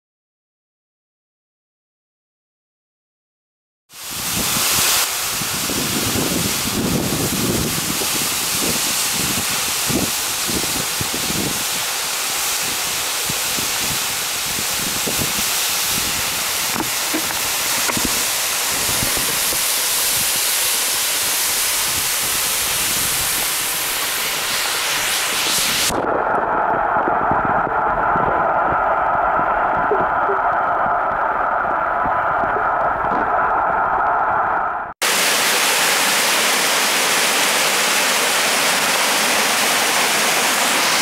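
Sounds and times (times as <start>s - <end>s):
waterfall crashing: 4.0s - 27.3s, 35.0s - 41.0s.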